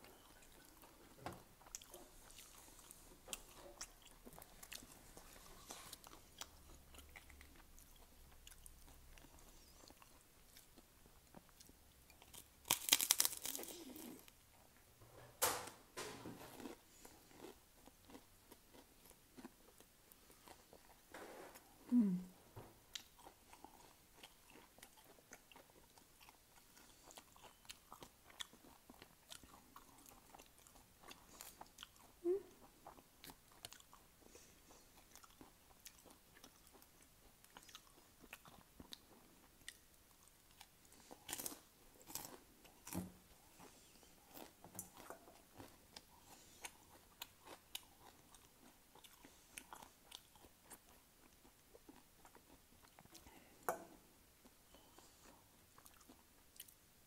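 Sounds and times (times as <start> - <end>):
crunching potato chips: 12.1 - 14.3.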